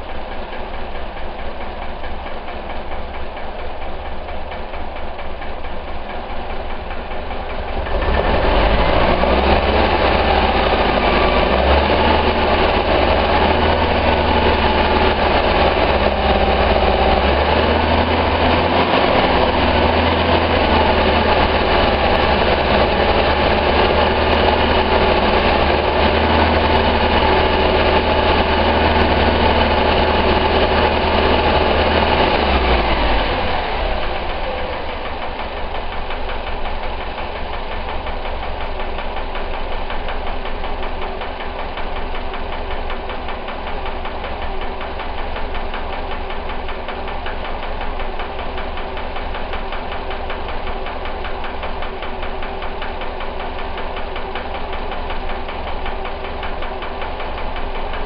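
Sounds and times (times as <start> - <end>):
car engine revving: 7.7 - 37.0.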